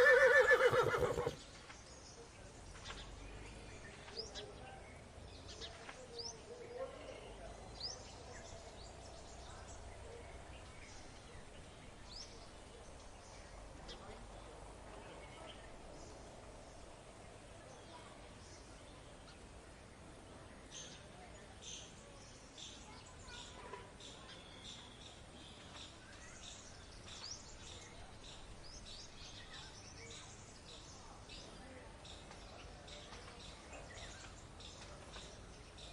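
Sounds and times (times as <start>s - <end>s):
low background hiss: 0.0s - 23.3s
small birds chirping: 0.0s - 35.9s.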